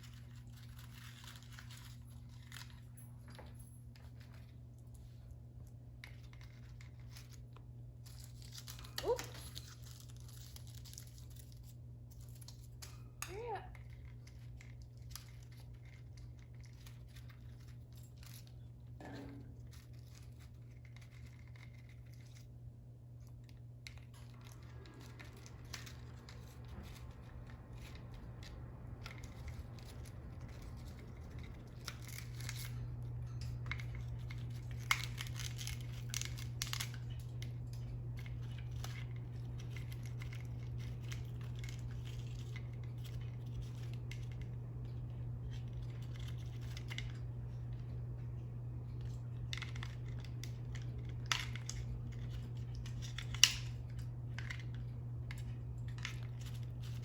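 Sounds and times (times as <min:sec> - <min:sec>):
parrot beak clicking and scratching: 0:00.0 - 0:03.2, 0:04.0 - 0:57.0
steady low hum: 0:00.0 - 0:57.0.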